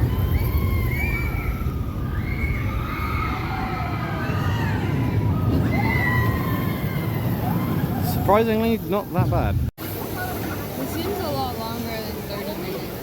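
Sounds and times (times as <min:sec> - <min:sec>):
low background rumble: 0:00.0 - 0:09.7.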